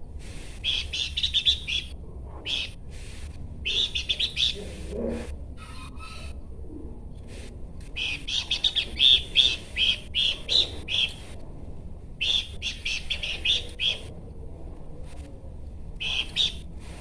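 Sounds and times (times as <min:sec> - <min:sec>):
bird chirping: 0:00.6 - 0:02.8, 0:03.6 - 0:04.6, 0:08.0 - 0:11.2, 0:12.2 - 0:14.1, 0:16.0 - 0:16.6.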